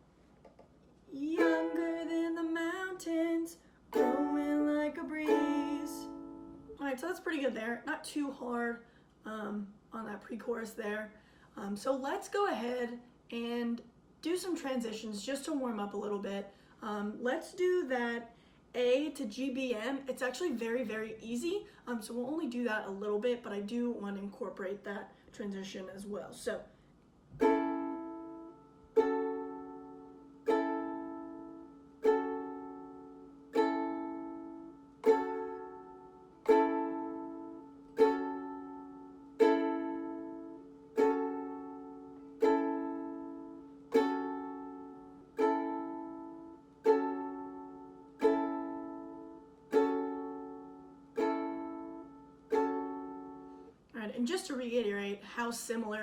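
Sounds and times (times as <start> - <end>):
ukulele strums: 0.4 - 6.8, 27.3 - 53.6.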